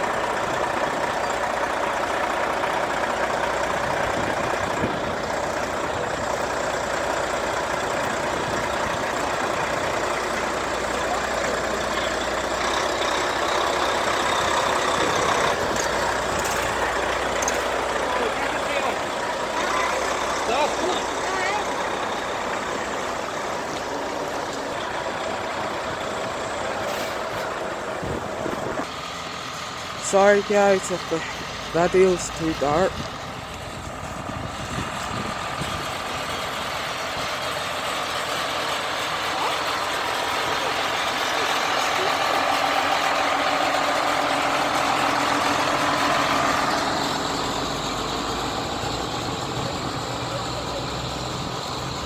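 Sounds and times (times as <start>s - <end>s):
truck diesel engines running: 0.0s - 52.0s.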